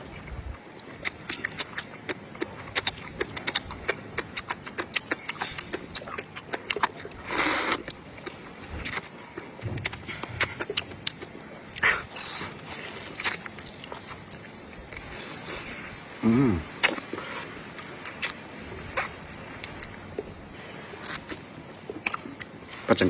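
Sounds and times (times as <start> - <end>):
chewing and gnawing meat: 0.0 - 16.1, 16.7 - 22.9
person humming: 16.2 - 16.7.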